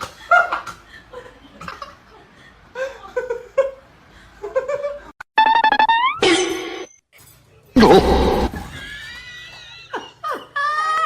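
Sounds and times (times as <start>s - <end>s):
people laughing and giggling: 0.0s - 5.2s, 8.4s - 11.0s.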